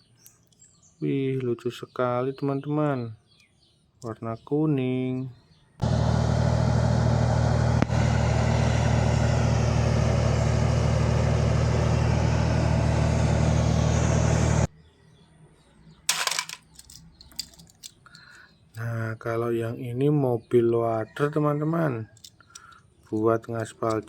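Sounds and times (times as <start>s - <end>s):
heavy engine running: 5.8s - 14.7s.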